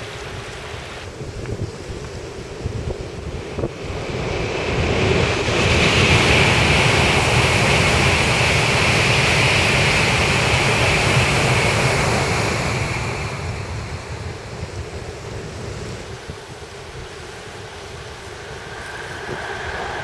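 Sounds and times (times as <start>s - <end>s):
train passing over steel bridge: 3.2s - 20.0s.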